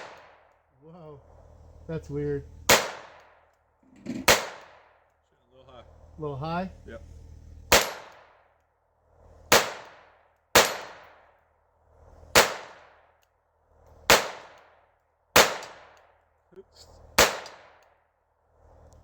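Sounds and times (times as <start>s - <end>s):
pistol shots cracking: 0.0s - 0.5s, 2.7s - 3.5s, 4.2s - 5.0s, 7.7s - 8.4s, 9.5s - 11.3s, 12.3s - 13.1s, 14.0s - 16.2s, 17.2s - 17.9s.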